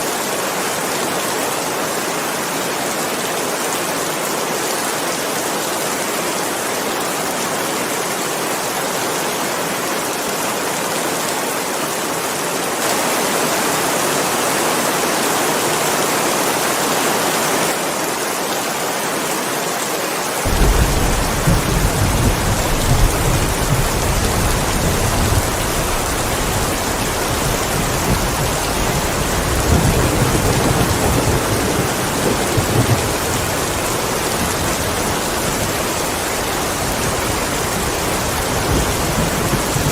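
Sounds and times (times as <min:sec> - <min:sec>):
heavy rain: 0:00.0 - 0:39.9
rolling thunder rumble: 0:20.5 - 0:39.9.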